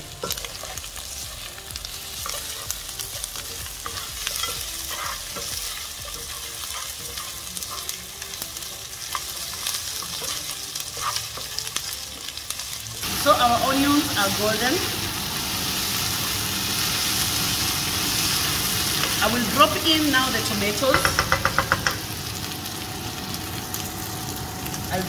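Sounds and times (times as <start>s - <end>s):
meat and onions sizzling in oil: 0.0s - 25.0s
wooden spatula scraping a pan: 3.4s - 8.0s, 9.9s - 11.6s.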